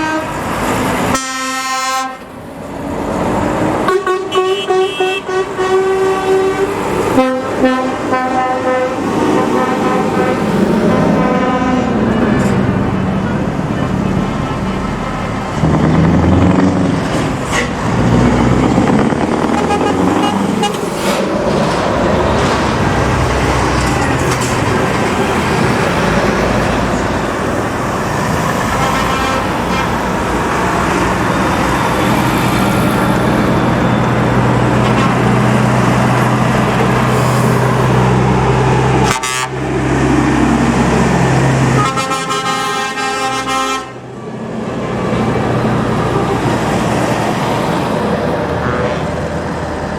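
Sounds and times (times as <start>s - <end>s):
lorries driving past: 0.0s - 49.9s
lorry horns tooting: 1.1s - 2.3s, 3.8s - 13.9s, 15.6s - 21.3s, 39.0s - 39.8s, 41.6s - 44.1s, 48.4s - 49.3s.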